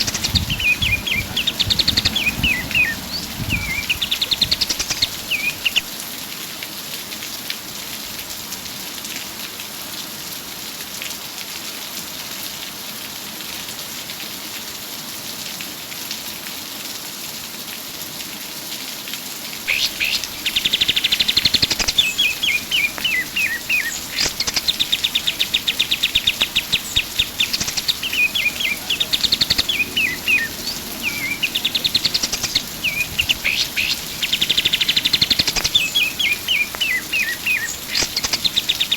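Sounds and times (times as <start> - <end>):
bird singing rapid trills: 0.0 - 5.9, 19.7 - 38.9
faint hiss: 19.6 - 38.9.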